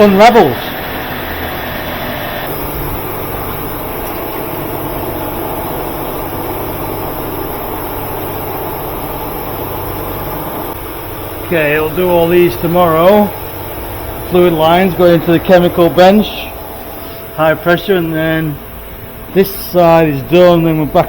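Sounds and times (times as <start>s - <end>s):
machine humming and hissing: 0.0s - 21.0s.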